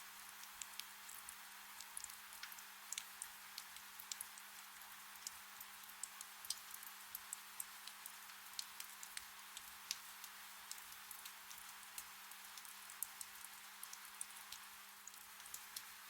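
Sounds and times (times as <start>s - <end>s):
gentle rain hiss: 0.0s - 16.0s
raindrops ticking: 1.8s - 15.9s.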